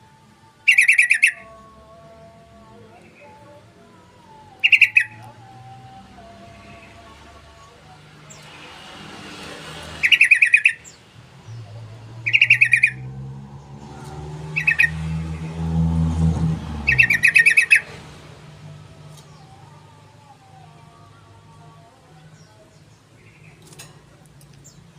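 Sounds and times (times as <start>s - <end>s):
low motor hum: 13.0s - 21.3s.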